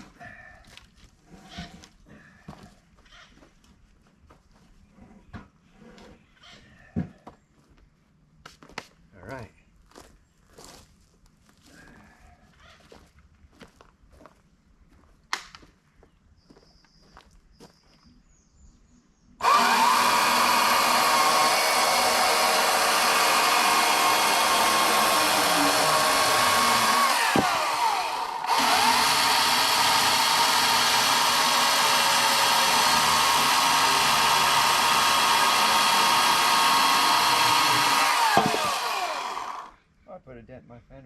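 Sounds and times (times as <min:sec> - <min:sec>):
electric chainsaw whining: 0:19.4 - 0:39.7.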